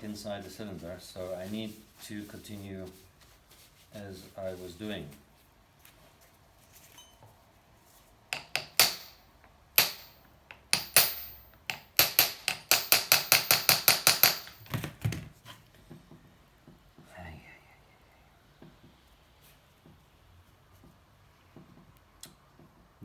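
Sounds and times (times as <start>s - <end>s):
hammer striking metal: 8.4s - 14.6s.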